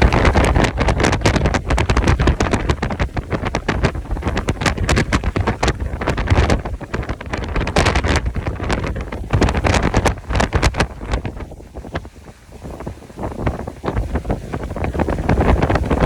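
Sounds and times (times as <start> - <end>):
wind gusting against microphone: 0.0 - 16.0.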